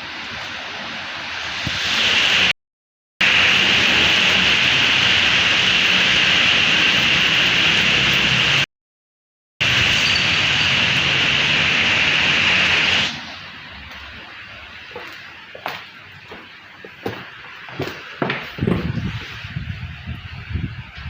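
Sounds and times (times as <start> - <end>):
strong wind roaring: 17.0 - 21.0.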